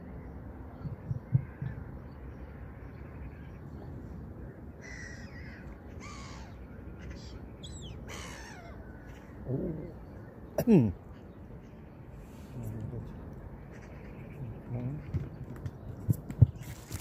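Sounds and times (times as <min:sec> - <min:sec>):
steady low background noise: 0:00.0 - 0:17.0
harsh caw-like bird calls: 0:01.2 - 0:03.7, 0:04.8 - 0:09.5, 0:13.6 - 0:15.5.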